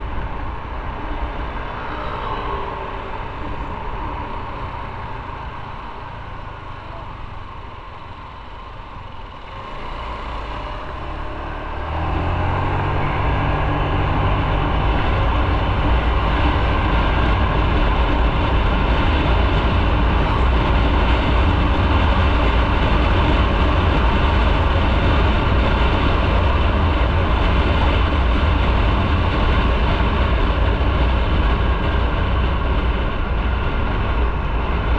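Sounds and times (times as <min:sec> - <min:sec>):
motorcycle engine: 0:00.0 - 0:34.9
wind and road noise: 0:00.0 - 0:34.9.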